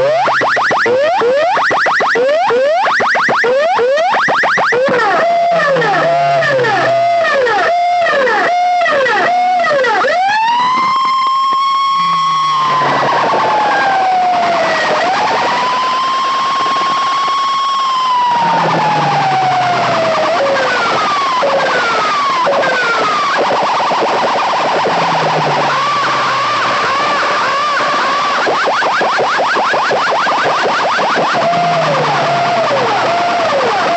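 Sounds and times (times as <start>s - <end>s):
wailing siren effect: 0.0s - 33.9s
fast warble: 18.4s - 26.9s.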